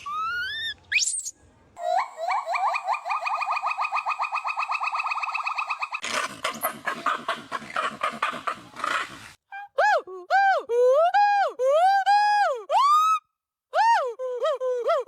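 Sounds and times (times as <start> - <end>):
animal chirping: 0.0 - 9.3
animal rapid chatter: 4.8 - 9.4.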